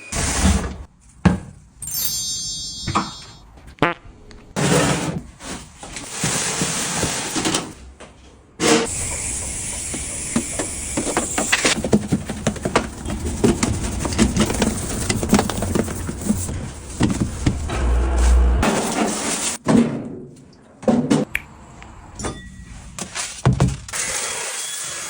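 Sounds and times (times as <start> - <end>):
cleaning hiss: 8.9 - 11.8.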